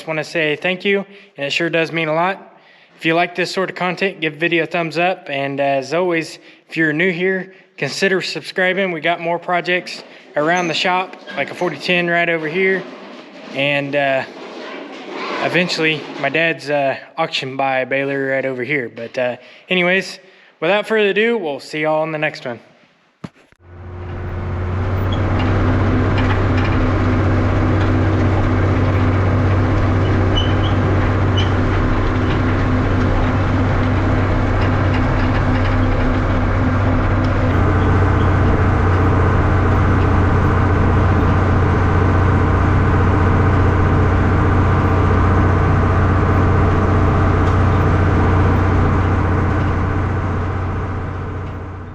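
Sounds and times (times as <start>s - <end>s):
engine running with low hum: 23.6s - 51.9s.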